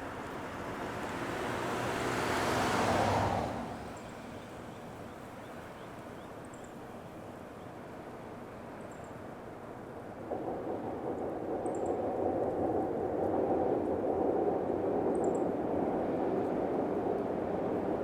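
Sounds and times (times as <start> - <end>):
vehicle passing by: 0.6 - 4.0.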